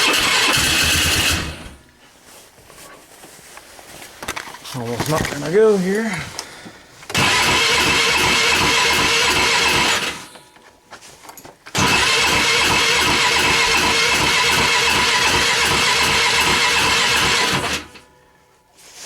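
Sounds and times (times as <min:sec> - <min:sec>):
electric starter cranking engine: 0:00.0 - 0:01.8, 0:07.1 - 0:10.4, 0:11.7 - 0:18.1.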